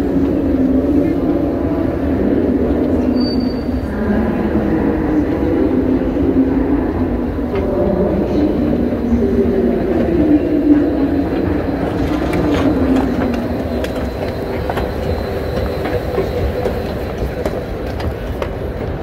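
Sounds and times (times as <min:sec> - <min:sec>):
train rumbling: 0:00.0 - 0:19.0
train clicks and rattles: 0:09.9 - 0:19.0.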